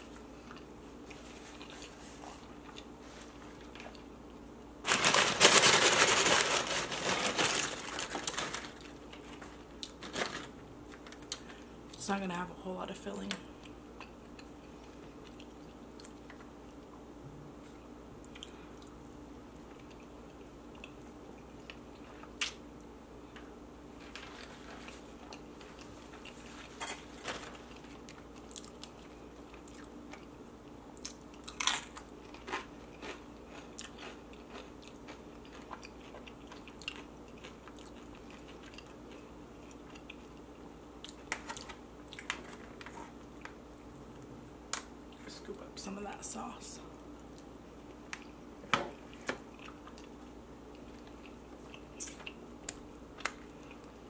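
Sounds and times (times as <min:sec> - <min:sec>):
faint steady hum: 0:00.0 - 0:54.0
biting and chewing food: 0:24.0 - 0:43.8, 0:47.2 - 0:54.0.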